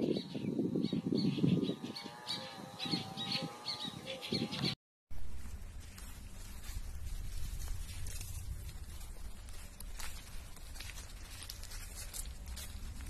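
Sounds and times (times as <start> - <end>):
birds chirping: 0.0 - 4.8
low hum: 5.2 - 13.0
low rustling noise: 5.2 - 13.0.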